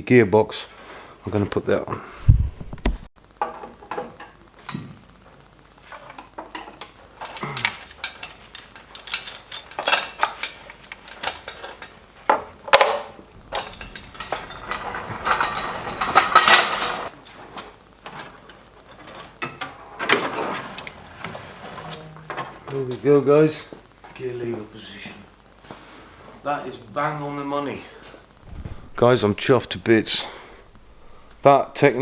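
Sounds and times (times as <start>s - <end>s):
metal tools clinking and knocking: 13.3s - 17.1s.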